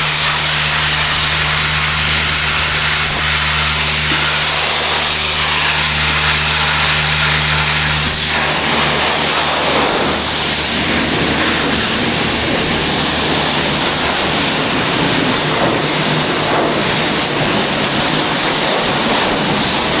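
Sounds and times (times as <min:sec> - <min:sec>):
low hum: 0:00.0 - 0:20.0
pressure washer spraying water: 0:00.0 - 0:20.0.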